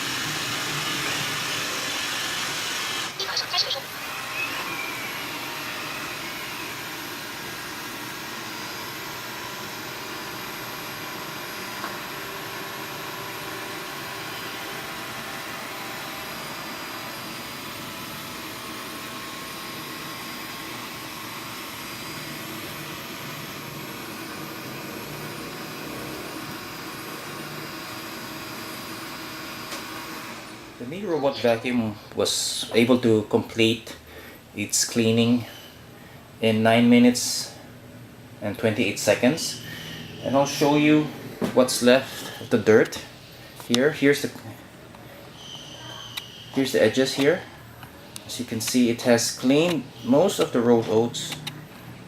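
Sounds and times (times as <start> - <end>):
robot vacuum whirring: 0.0 - 30.7.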